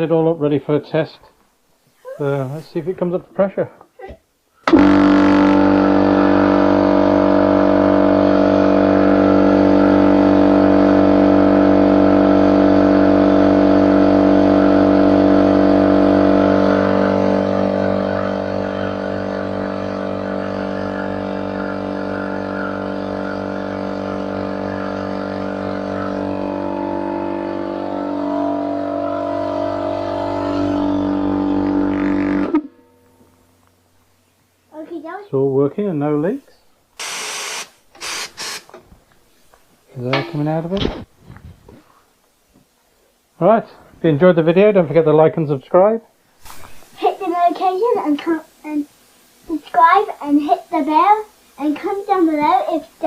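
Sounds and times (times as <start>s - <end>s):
air compressor running: 4.6s - 32.7s, 37.0s - 38.8s.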